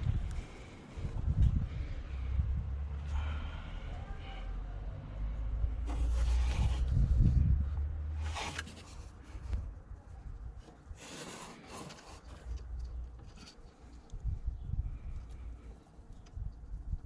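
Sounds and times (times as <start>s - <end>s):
low rumble: 0.0s - 10.6s
rubbing and rustling handling noises: 5.9s - 7.4s, 8.1s - 14.0s.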